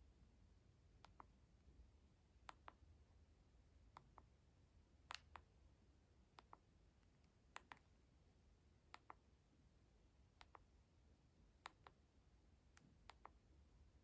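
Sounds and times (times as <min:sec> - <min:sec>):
light sharp clicks in pairs: 0:06.4 - 0:07.9, 0:12.7 - 0:13.4.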